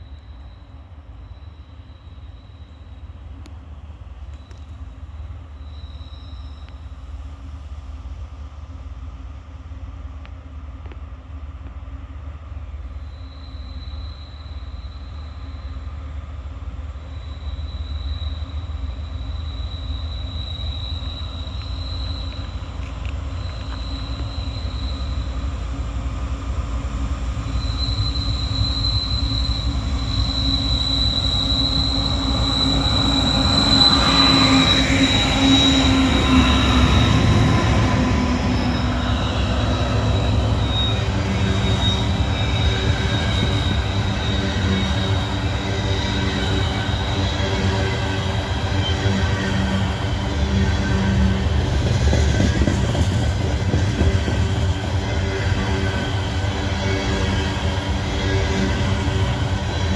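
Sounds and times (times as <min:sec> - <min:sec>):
steel wheels squealing on rails: 0:00.0 - 0:59.9
locomotive engine rumble: 0:18.4 - 0:59.9.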